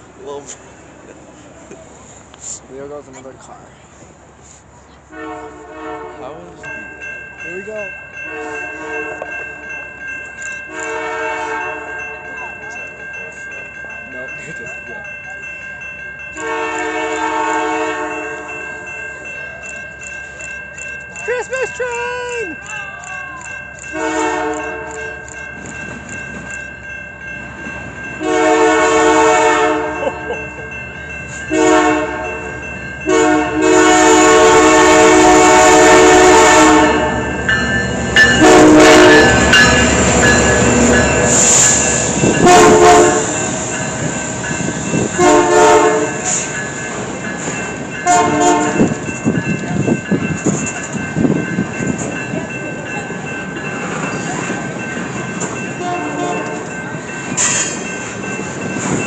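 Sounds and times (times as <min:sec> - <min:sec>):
train rumbling past: 0:00.0 - 0:59.0
locomotive air horn blasts: 0:05.1 - 0:06.4, 0:08.3 - 0:09.3, 0:10.7 - 0:12.0, 0:16.4 - 0:18.5, 0:23.9 - 0:24.9, 0:28.2 - 0:30.0, 0:31.5 - 0:32.4, 0:33.1 - 0:37.3, 0:38.4 - 0:39.6, 0:42.2 - 0:43.4, 0:45.2 - 0:46.4, 0:48.0 - 0:49.0, 0:55.8 - 0:56.6
train wheels clicking over rails: 0:37.4 - 0:48.0.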